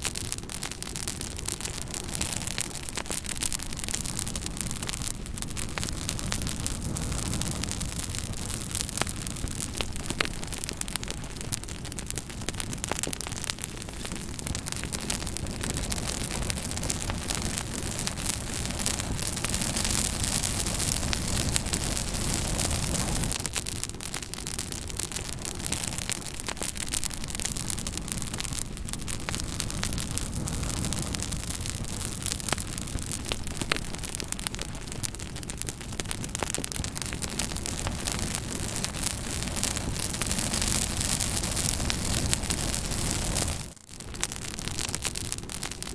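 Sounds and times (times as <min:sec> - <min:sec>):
fire crackling and popping: 0:00.0 - 0:45.9.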